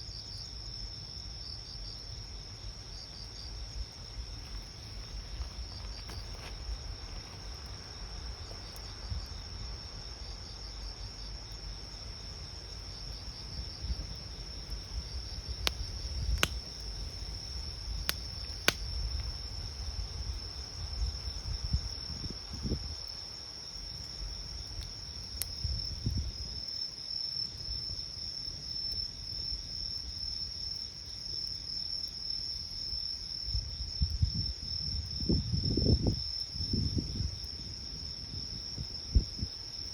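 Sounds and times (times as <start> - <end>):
crickets trilling: 0.0 - 39.9
campfire popping: 1.9 - 26.4.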